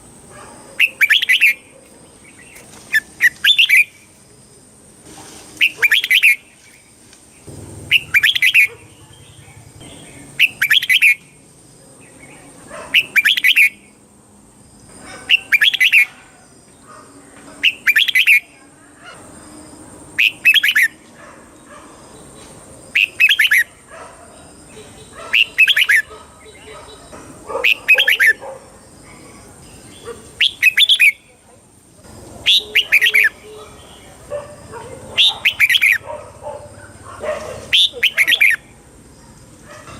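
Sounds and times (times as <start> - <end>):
bird singing warbled phrase: 0.8 - 4.0, 5.6 - 6.5, 7.4 - 11.4, 12.0 - 14.0, 15.2 - 16.1, 17.6 - 18.6, 20.2 - 21.0, 22.9 - 23.7, 24.6 - 28.4, 29.7 - 31.4, 32.4 - 34.3, 35.2 - 36.0, 37.7 - 38.7.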